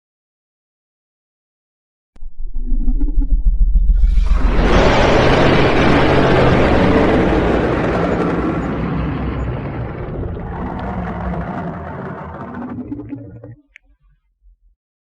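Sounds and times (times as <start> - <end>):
low rumble: 2.2 - 13.8
rough roaring blast: 3.6 - 13.6.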